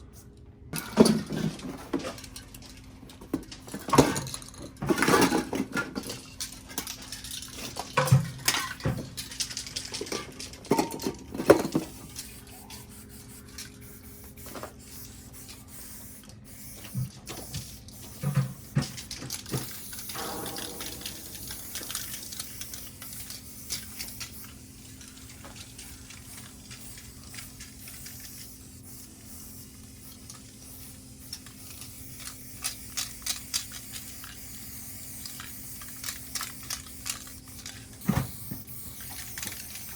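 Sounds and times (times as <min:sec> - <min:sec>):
spray paint can hissing: 0:11.7 - 0:39.9.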